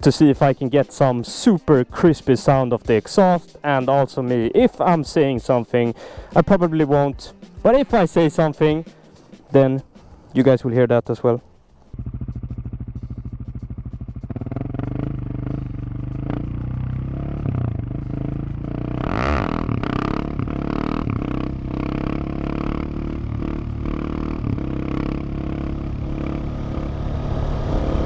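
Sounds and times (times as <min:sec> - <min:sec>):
motorcycle engine revving: 0:11.6 - 0:28.0.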